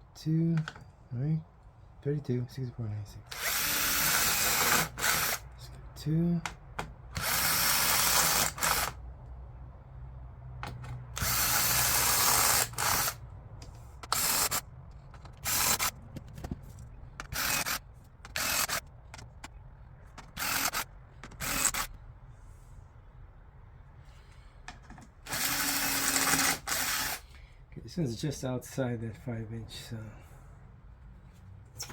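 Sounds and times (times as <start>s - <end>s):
power drill drilling into wood: 3.3s - 5.4s, 7.2s - 9.0s, 11.2s - 13.2s, 20.4s - 20.8s, 25.3s - 27.2s.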